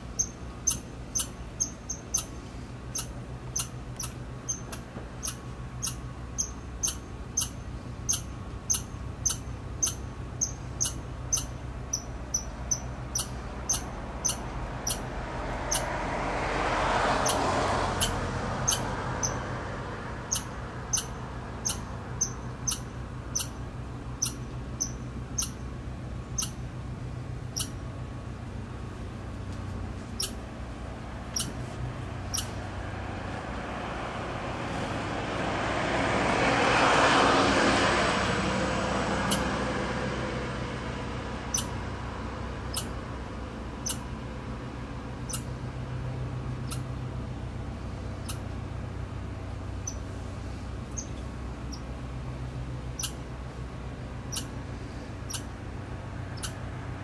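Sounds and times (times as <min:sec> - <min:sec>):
squirrel chirping calls: 0:00.0 - 0:15.9, 0:17.2 - 0:19.5, 0:20.2 - 0:25.7, 0:26.3 - 0:26.7, 0:27.4 - 0:27.9, 0:30.2 - 0:30.4, 0:31.4 - 0:31.6, 0:32.3 - 0:32.6, 0:39.3 - 0:39.5, 0:41.5 - 0:41.8, 0:42.7 - 0:43.0, 0:43.8 - 0:44.1, 0:45.2 - 0:45.5, 0:46.6 - 0:46.9, 0:48.2 - 0:48.5, 0:49.8 - 0:50.0, 0:50.9 - 0:51.9, 0:52.9 - 0:53.3, 0:54.3 - 0:54.6, 0:55.2 - 0:55.6, 0:56.3 - 0:56.6.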